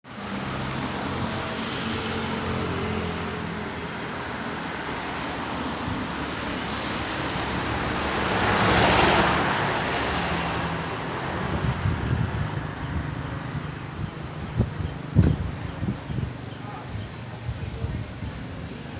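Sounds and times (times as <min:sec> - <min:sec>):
vehicle passing close by: 0:00.3 - 0:13.1.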